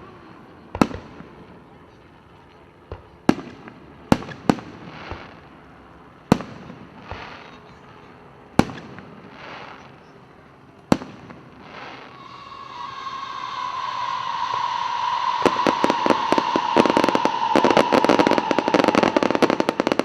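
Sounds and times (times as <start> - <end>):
firework crackling hiss: 11.6 - 20.0
firework shells bursting with bangs: 13.5 - 20.0.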